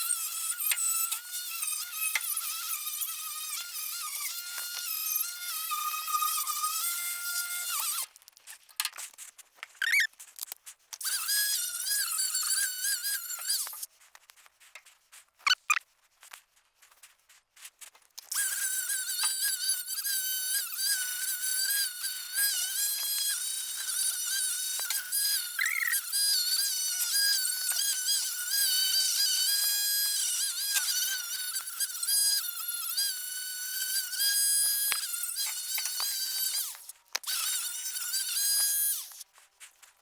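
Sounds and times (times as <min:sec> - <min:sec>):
angle grinder wire wheel whine: 0:18.4 - 0:39.2.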